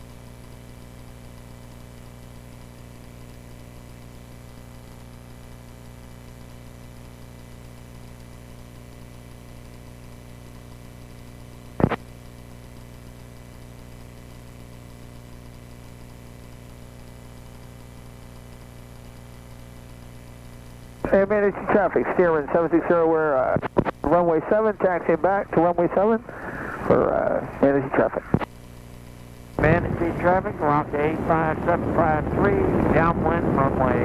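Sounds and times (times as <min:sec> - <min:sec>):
light aircraft engine idling: 0:29.6 - 0:34.0.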